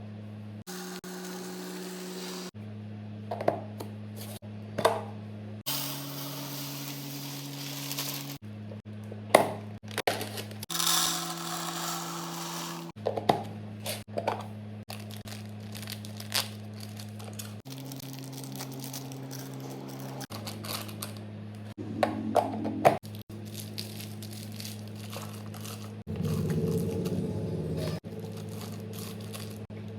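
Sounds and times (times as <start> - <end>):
plastic packaging crinkling: 14.9 - 21.2, 23.0 - 27.0, 28.1 - 29.7.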